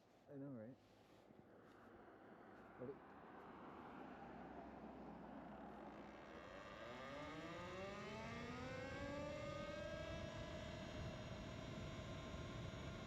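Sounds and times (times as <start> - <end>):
motor whine rising in pitch: 6.6 - 13.0.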